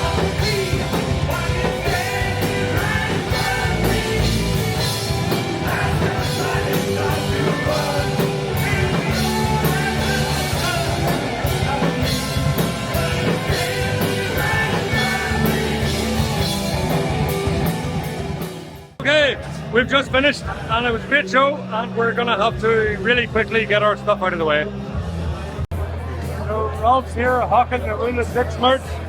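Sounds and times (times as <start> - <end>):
person singing: 0.0 - 16.7
guitars: 0.0 - 25.6
drum kit: 0.0 - 28.6.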